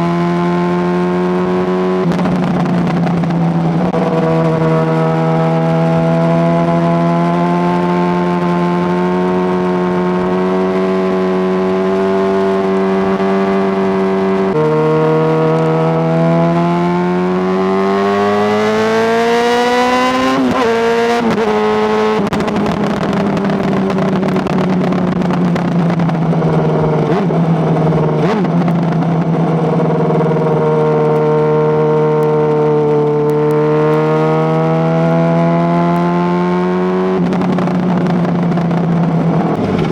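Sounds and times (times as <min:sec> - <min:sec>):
motorcycle engine revving: 0:00.0 - 0:39.9
exhaust crackles: 0:08.2 - 0:31.6.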